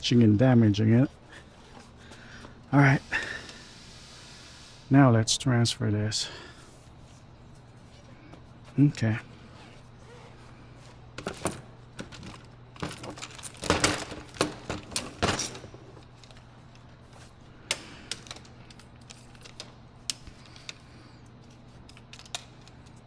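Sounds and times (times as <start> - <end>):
door latch parts clicking and rattling: 11.2 - 16.4, 17.7 - 20.8.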